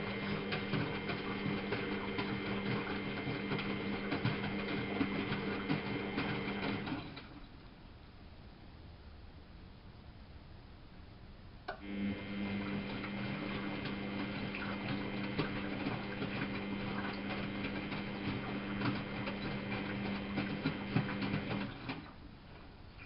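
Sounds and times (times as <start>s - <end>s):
laundry and water splashing: 0.0s - 7.6s, 12.0s - 22.7s
washing machine motor hum: 0.0s - 7.6s, 11.7s - 23.0s.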